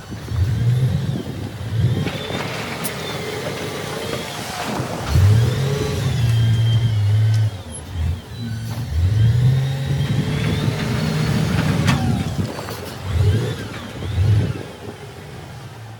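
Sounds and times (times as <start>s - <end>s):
heavy machine engine revving: 0.1s - 15.8s.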